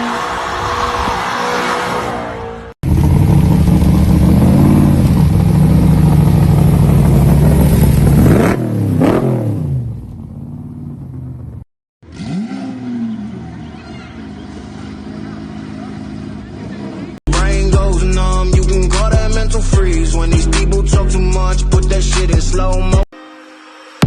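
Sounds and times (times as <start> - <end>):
car engine revving: 0.0 - 17.2.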